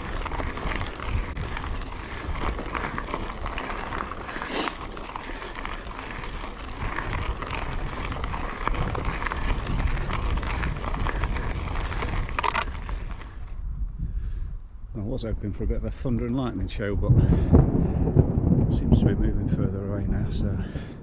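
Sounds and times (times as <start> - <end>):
crunching footsteps on trail: 0.0 - 14.9
wind buffeting microphone: 0.0 - 21.0.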